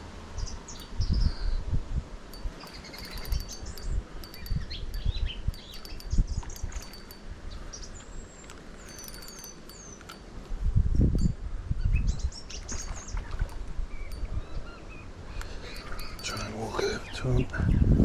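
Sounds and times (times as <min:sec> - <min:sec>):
quick runs of ticks: 0:02.3 - 0:10.6, 0:12.7 - 0:14.4, 0:15.4 - 0:17.1
birds chirping and singing: 0:14.0 - 0:18.0.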